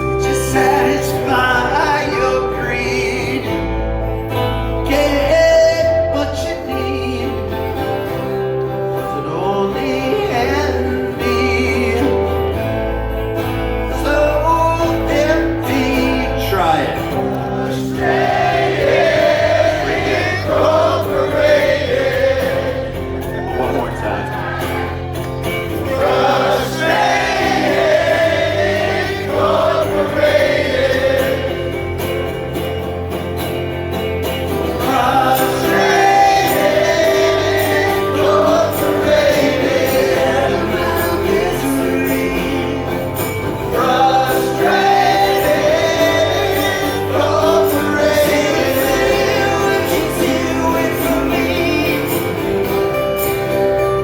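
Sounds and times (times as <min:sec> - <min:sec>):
voices singing together: 0:00.0 - 0:03.8, 0:14.8 - 0:32.3, 0:34.5 - 0:52.8
acoustic guitar chords: 0:00.0 - 0:54.0.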